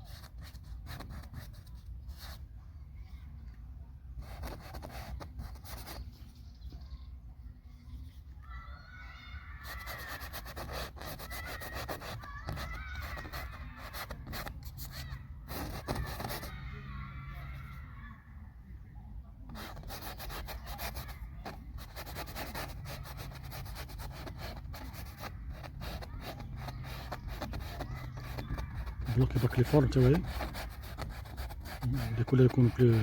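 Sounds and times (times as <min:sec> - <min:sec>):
paintbrush scrubbing paint: 0:09.6 - 0:16.6, 0:19.5 - 0:33.0.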